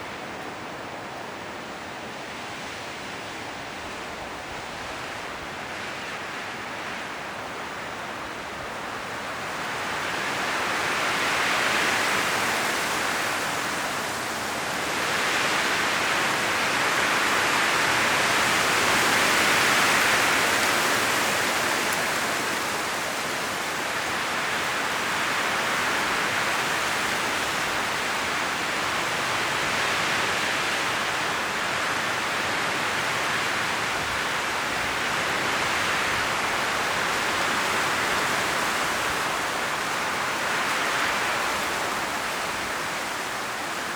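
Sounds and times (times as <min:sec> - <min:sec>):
strong wind in trees: 0:00.0 - 0:43.9
leaves rustling: 0:08.1 - 0:43.9.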